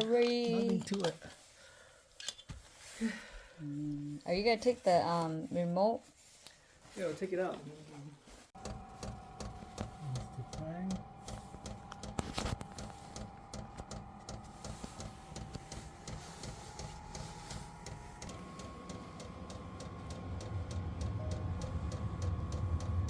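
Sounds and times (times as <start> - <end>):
blower fan whine: 8.6 - 23.0
deep hum: 8.6 - 23.0
fuel pump ticking: 8.6 - 23.0.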